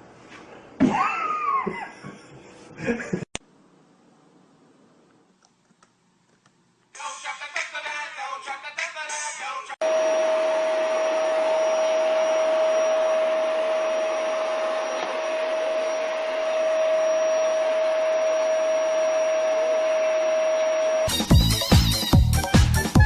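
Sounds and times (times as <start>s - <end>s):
electric appliance motor whirring: 9.8s - 21.1s
high hum tone: 9.8s - 22.0s.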